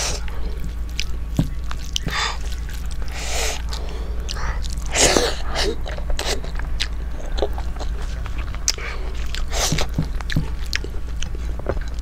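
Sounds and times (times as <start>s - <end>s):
lip smacks: 0.0s - 12.0s
low steady hum: 0.0s - 12.0s
wet close-up chewing: 0.0s - 12.0s
breathy bursts: 2.0s - 10.1s.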